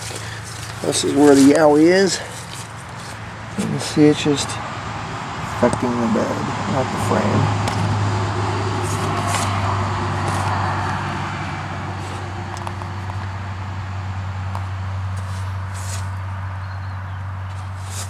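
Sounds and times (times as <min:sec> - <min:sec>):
light clicks and scuffs: 0:00.0 - 0:03.9, 0:08.8 - 0:09.6, 0:10.2 - 0:10.6, 0:15.2 - 0:16.2, 0:17.5 - 0:18.0.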